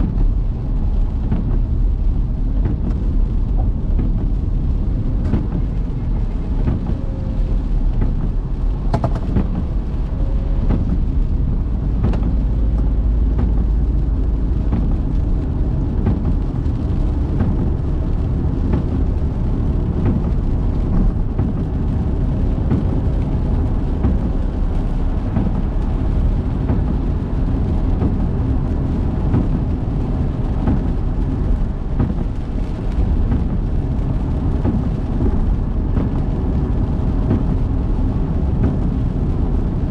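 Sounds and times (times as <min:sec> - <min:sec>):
raindrop ticks: 0:00.0 - 0:39.9
road and engine rumble: 0:00.0 - 0:39.9.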